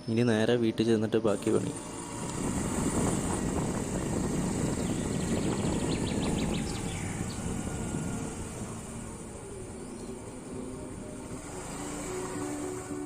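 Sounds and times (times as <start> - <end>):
high bird chirps: 4.5 - 11.4.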